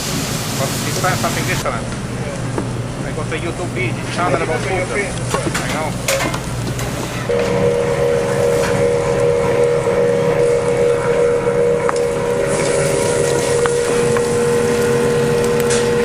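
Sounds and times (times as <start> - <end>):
machine humming: 7.2 - 16.0.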